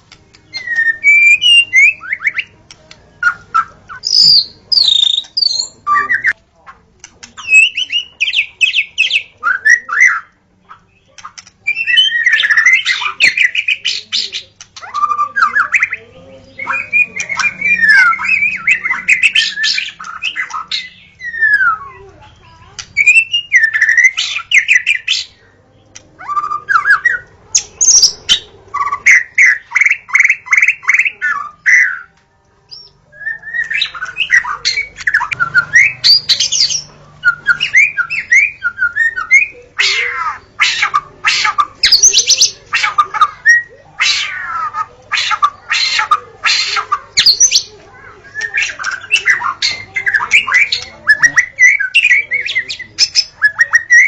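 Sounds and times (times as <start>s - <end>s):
harsh rasping bird notes: 0.0s - 6.4s, 7.0s - 54.0s
bird singing whistled song: 0.4s - 2.5s, 3.2s - 6.4s, 7.3s - 22.0s, 23.0s - 25.4s, 32.7s - 43.7s, 46.8s - 54.0s.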